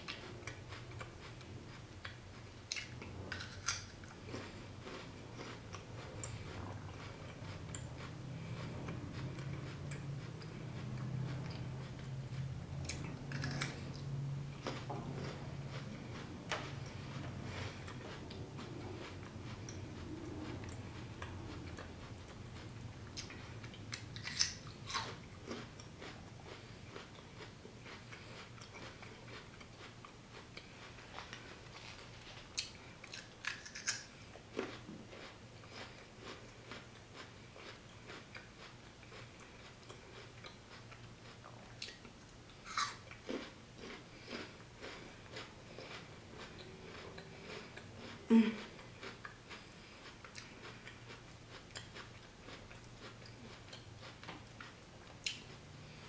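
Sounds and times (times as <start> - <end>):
chewing crunchy raw vegetable: 0.0 - 56.0.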